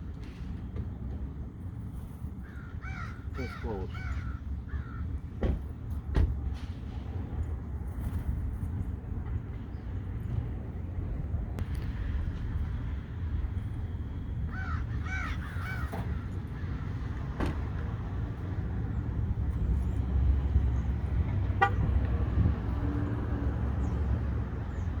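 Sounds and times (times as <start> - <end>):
seagull crying: 2.5 - 5.1, 14.5 - 16.8
steady low rumble: 7.0 - 15.1.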